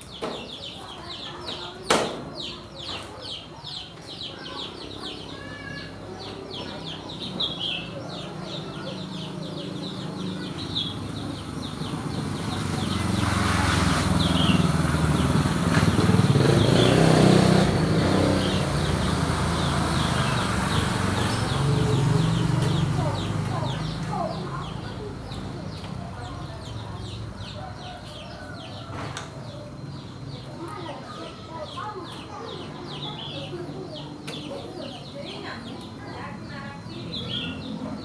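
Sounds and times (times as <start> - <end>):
chickens calling: 0.0 - 36.3
small birds calling: 0.0 - 38.0
vehicle engine passing by: 6.8 - 30.4.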